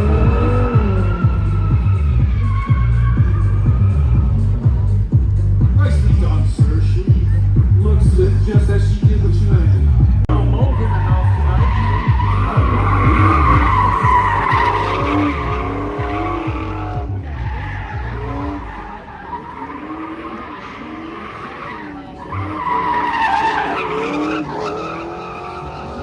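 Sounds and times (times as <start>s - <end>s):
tyres squealing: 0.0s - 4.2s, 10.3s - 26.0s
car engine running hard: 0.0s - 26.0s.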